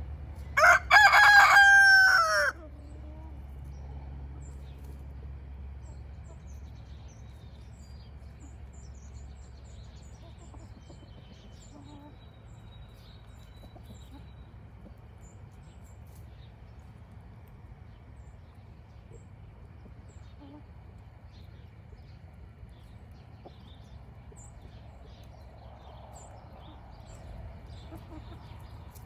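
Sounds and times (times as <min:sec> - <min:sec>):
small birds chirping: 0:02.6 - 0:29.0
low rumble: 0:21.3 - 0:29.0.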